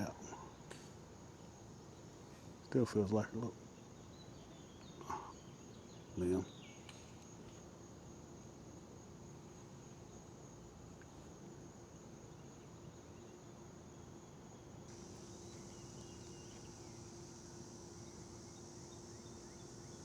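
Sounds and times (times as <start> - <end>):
faint low hum: 0.0 - 20.0
trilling insects: 0.0 - 20.0.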